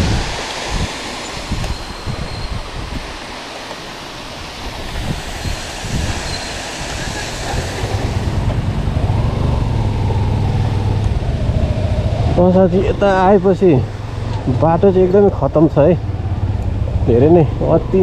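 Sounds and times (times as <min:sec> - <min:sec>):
rushing water: 0:00.0 - 0:18.0
wind: 0:00.0 - 0:18.0
motorcycle engine drone: 0:06.9 - 0:18.0.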